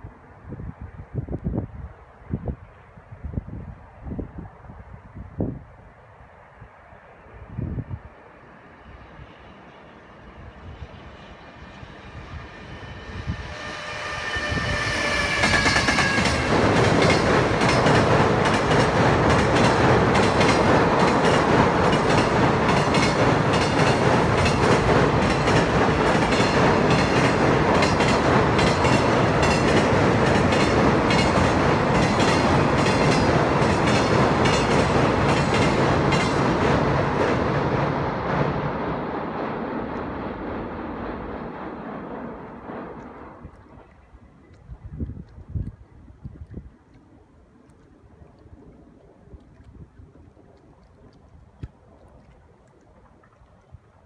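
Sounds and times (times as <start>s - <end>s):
train wagons rumbling: 12.4s - 43.8s.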